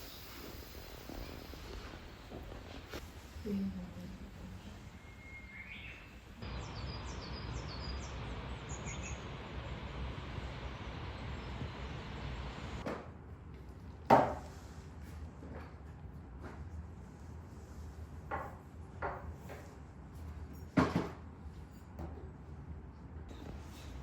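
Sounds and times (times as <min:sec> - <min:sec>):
bird chirps: 0:05.0 - 0:09.3.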